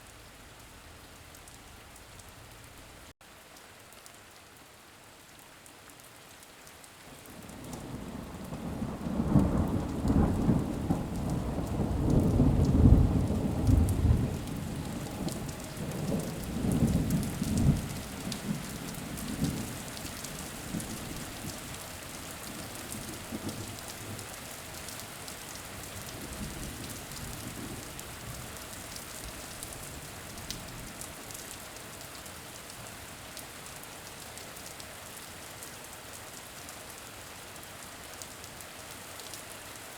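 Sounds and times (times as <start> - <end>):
steady rain falling: 0.0 - 39.9
rolling thunder: 7.8 - 19.8.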